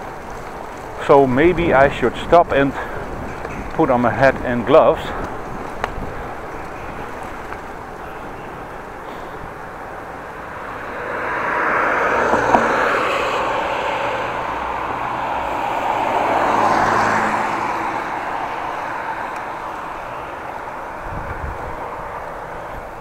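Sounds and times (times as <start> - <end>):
road traffic passing: 0.0 - 23.0.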